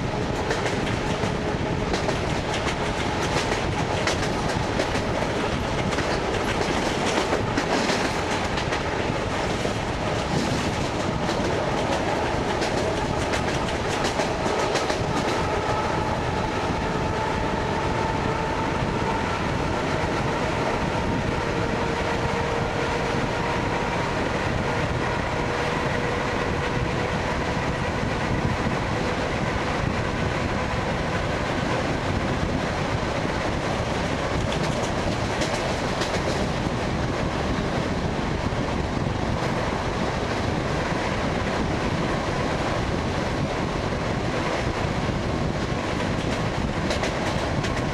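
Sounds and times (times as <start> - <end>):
train running rumble: 0.0 - 47.9
wheels clicking over rail joints: 0.3 - 16.4, 33.8 - 37.1, 45.4 - 47.9.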